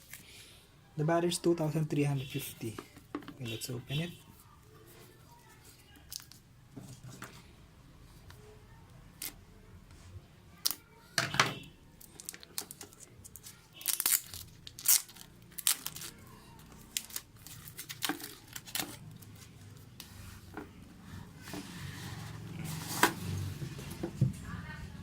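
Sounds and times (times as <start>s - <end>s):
packaging tearing and crinkling: 12.2s - 19.0s.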